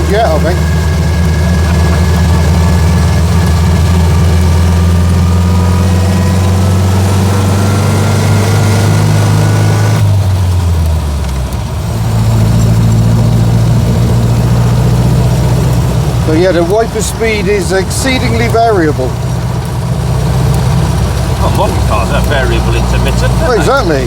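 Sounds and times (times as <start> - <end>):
car engine pulling: 0.0 - 24.0
drivetrain whine: 0.0 - 24.0.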